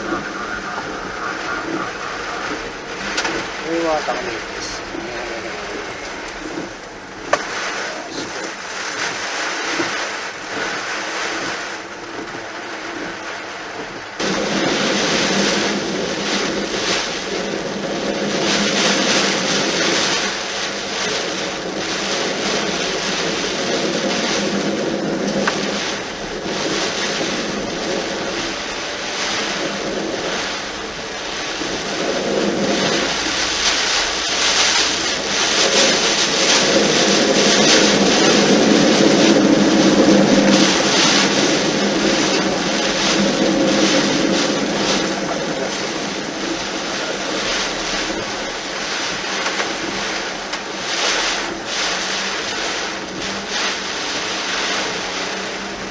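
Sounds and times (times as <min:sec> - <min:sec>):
car driving on flooded road: 0:00.0 - 0:55.9
water spraying and splashing: 0:00.0 - 0:55.9.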